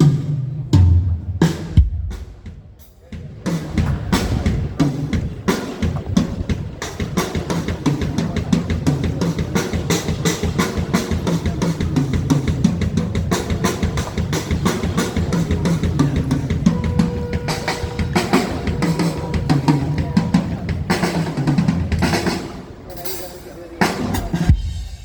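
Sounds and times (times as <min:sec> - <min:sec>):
bass drum and snare hits: 0:00.0 - 0:07.8.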